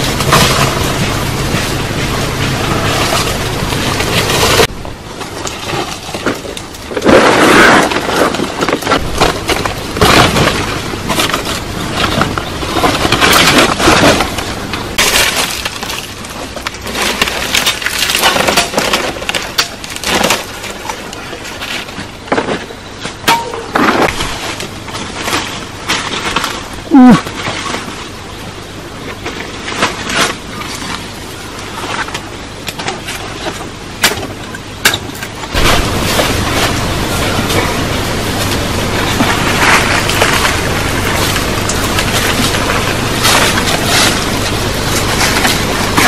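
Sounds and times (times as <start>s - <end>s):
leaves rustling: 0.0s - 22.2s, 23.7s - 46.0s
branches snapping: 29.2s - 46.0s.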